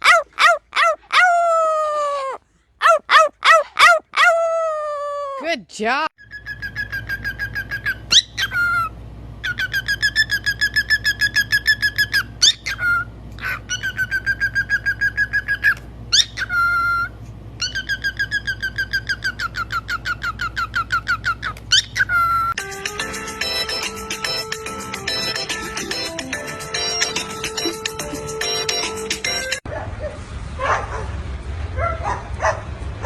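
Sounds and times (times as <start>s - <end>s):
parrot whistling pulsed notes: 6.2s - 13.1s, 13.7s - 29.6s.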